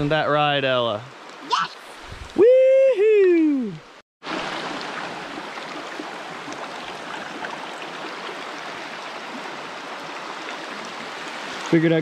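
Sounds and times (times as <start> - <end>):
flowing creek rushing: 3.2 - 12.0.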